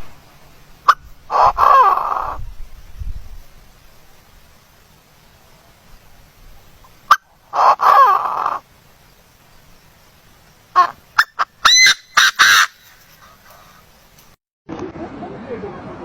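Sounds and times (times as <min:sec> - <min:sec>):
bird calling loudly: 0:00.8 - 0:02.4, 0:06.8 - 0:08.7, 0:10.7 - 0:14.2.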